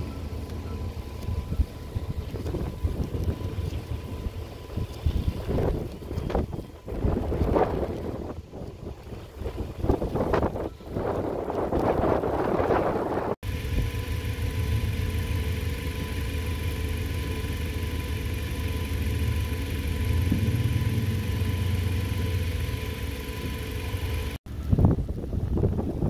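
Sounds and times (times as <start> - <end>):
faint steady high tone: 0.0 - 7.7
car engine running: 0.0 - 24.4
gusty wind buffeting microphone: 1.1 - 15.9, 24.5 - 26.0.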